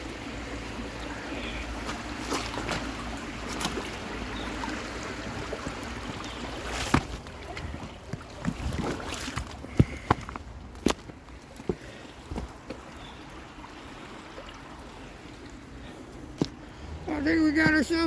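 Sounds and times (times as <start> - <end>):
stream running: 0.0 - 18.0
footsteps scrambling up a bank: 5.3 - 12.8.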